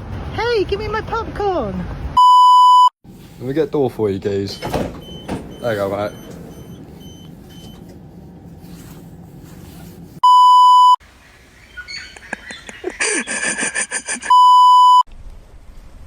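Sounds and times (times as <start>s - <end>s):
censor bleeps: 2.2s - 2.9s, 10.2s - 11.0s, 14.3s - 15.0s.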